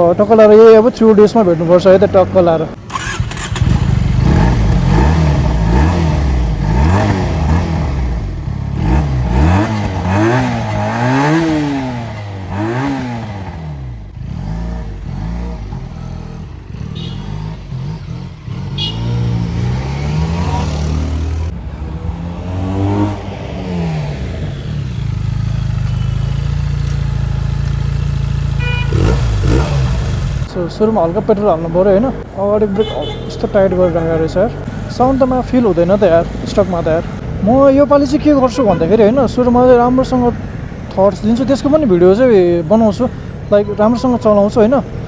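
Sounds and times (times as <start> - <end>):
motorcycle engine revving: 2.8 - 30.5.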